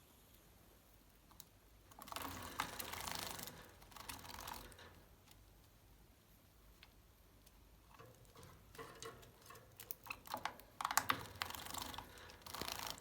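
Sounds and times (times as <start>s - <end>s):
birds clicking and rustling: 7.9s - 13.0s.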